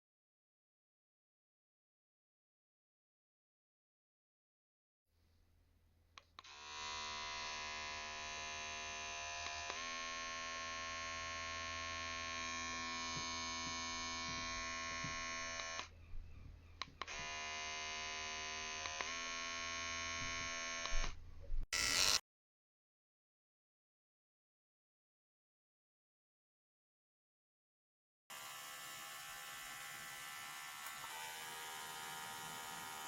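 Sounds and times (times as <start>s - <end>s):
electric hair trimmer humming: 6.4s - 15.9s, 17.0s - 22.2s, 28.3s - 33.0s.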